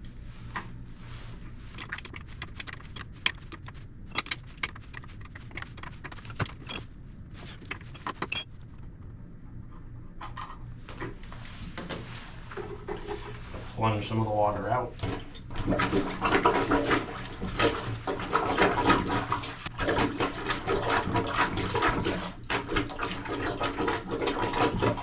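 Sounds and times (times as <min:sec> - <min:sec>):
steady low hum: 0:00.0 - 0:25.0
metal hand tools clinking: 0:07.9 - 0:08.6.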